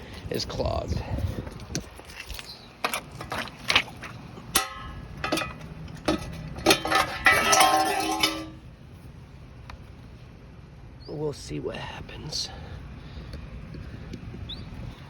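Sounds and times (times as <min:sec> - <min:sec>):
hard objects rattling: 0:04.6 - 0:08.6.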